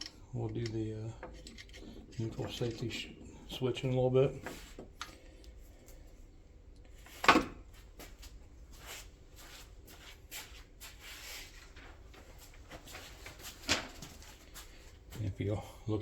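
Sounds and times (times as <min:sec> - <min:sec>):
tools clicking and rubbing: 0:00.0 - 0:03.0.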